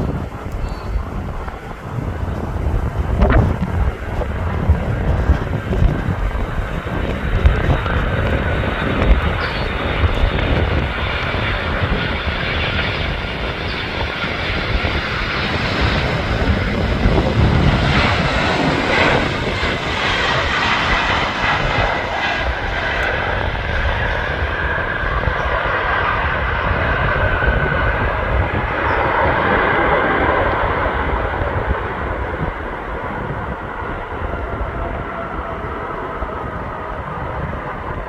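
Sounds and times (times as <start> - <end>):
jet engines roaring: 0.0 - 38.0
wind buffeting microphone: 0.0 - 38.0.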